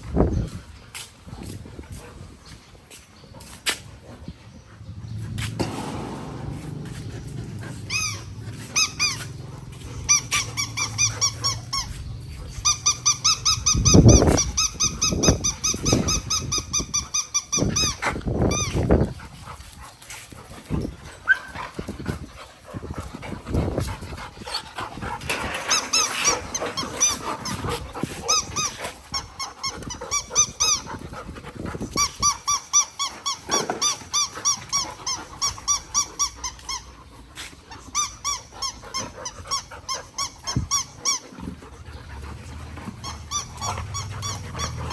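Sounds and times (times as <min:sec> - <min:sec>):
low thuds: 0:04.9 - 0:10.6
squeaky toy squeaking: 0:07.9 - 0:09.3, 0:10.0 - 0:18.8, 0:28.3 - 0:30.9, 0:32.0 - 0:36.9, 0:37.8 - 0:41.3, 0:43.0 - 0:44.9.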